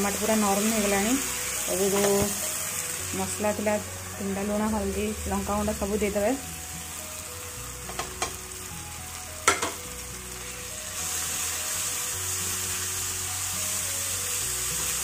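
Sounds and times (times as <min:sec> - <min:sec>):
masala sizzling in hot oil: 0:00.0 - 0:15.0.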